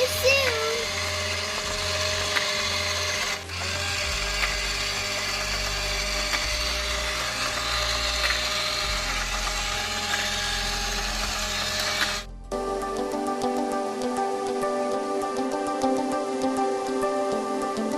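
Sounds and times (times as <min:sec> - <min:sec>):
toy electric motor whirring: 0:00.0 - 0:12.3
music: 0:00.0 - 0:17.9.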